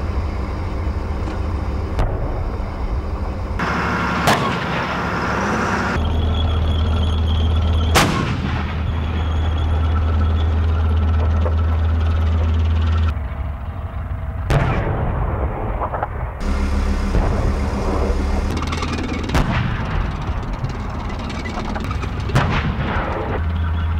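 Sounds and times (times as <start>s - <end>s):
tank engine droning: 0.0s - 23.9s
tank gun firing: 3.6s - 5.4s, 7.9s - 9.5s, 14.4s - 23.4s.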